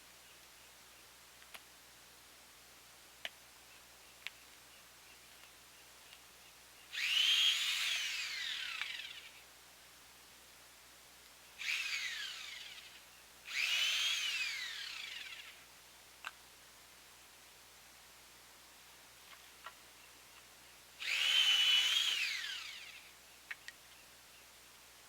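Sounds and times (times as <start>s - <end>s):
chainsaw revving: 7.0s - 9.3s, 11.6s - 15.6s, 21.0s - 23.1s.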